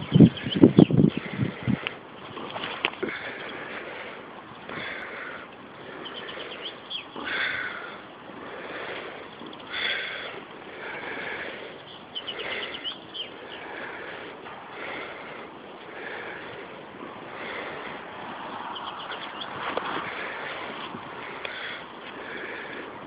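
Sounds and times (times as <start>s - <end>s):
birds chirping: 0.0s - 23.0s
rustling and scuffling: 19.5s - 21.2s.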